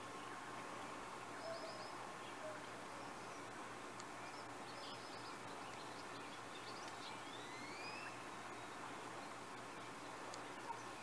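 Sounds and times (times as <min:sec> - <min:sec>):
steady background hiss: 0:00.0 - 0:11.0
high bird chirps: 0:06.6 - 0:08.2.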